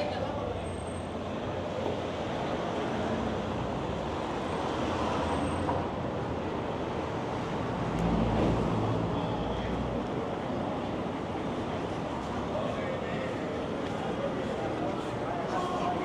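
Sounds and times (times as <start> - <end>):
passing vehicles: 0.0 - 16.0.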